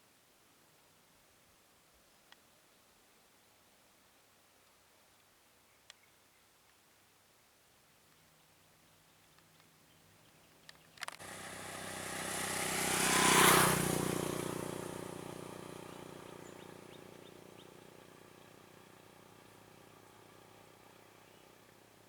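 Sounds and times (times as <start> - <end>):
vehicle engine passing by: 11.2 - 22.0.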